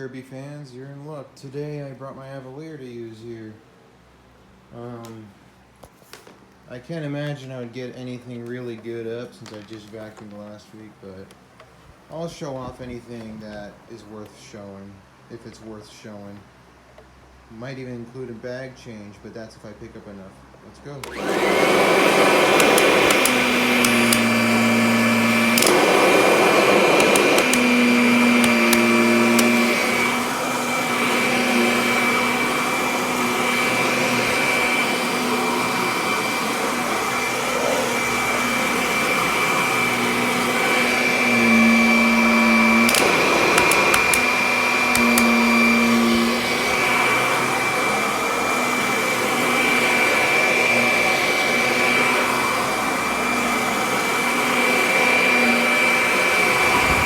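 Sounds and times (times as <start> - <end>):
upright vacuum cleaner running: 21.0 - 57.0
vacuum rushing surge: 56.4 - 57.0.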